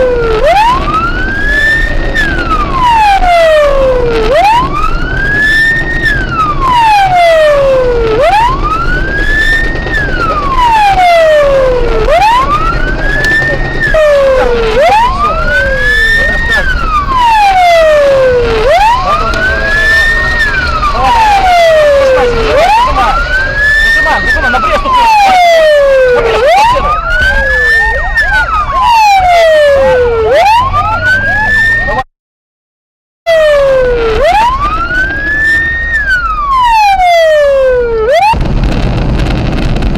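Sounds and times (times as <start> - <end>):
low vehicle rumble: 0.0 - 32.0, 33.3 - 39.9
police siren wailing: 0.0 - 32.1, 33.3 - 39.1
siren quick repeating yelps: 10.4 - 32.0, 33.3 - 38.4.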